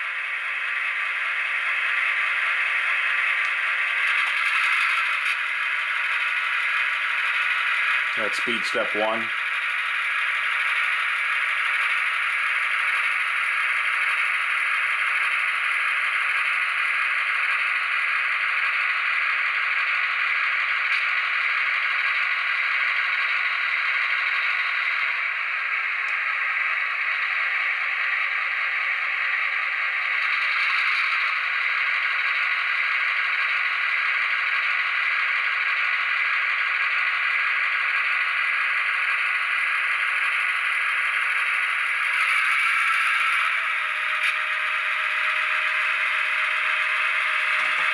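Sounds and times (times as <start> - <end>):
diesel engine sound from small speaker: 0.0 - 47.9.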